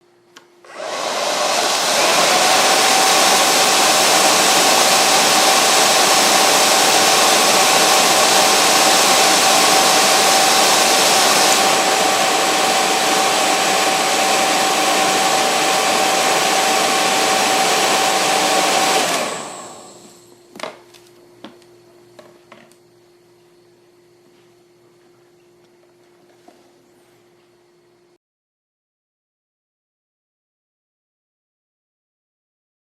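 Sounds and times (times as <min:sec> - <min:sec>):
hair dryer blowing: 0:00.6 - 0:20.2.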